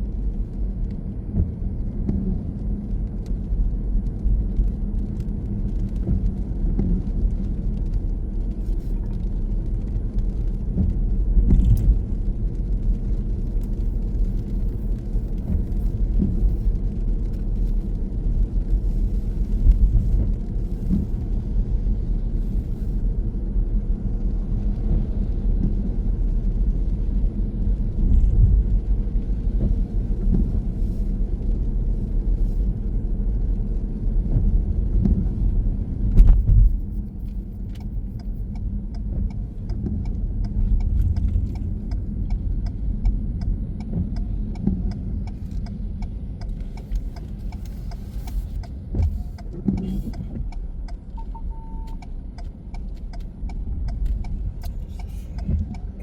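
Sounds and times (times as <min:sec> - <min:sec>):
car interior road rumble: 0:00.0 - 0:56.0
turn signal ticking: 0:36.2 - 0:56.0.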